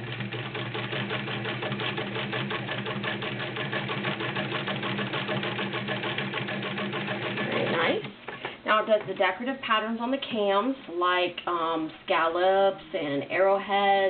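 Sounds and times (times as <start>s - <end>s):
sewing machine running: 0.0s - 8.4s.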